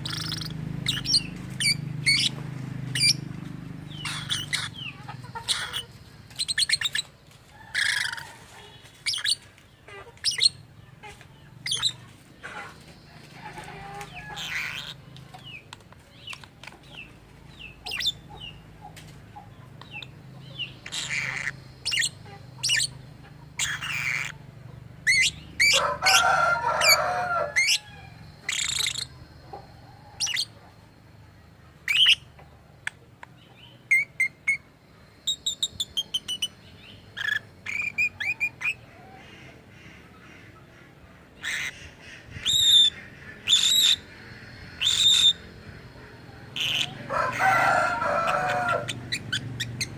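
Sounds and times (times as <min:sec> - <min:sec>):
lovebird chirping and squawking: 0:00.0 - 0:03.3, 0:03.9 - 0:07.1, 0:07.7 - 0:08.3, 0:09.0 - 0:12.8, 0:13.7 - 0:15.6, 0:17.5 - 0:18.6, 0:19.8 - 0:24.4, 0:25.0 - 0:29.2, 0:30.2 - 0:30.6, 0:31.8 - 0:33.0, 0:33.9 - 0:39.9, 0:41.4 - 0:49.9.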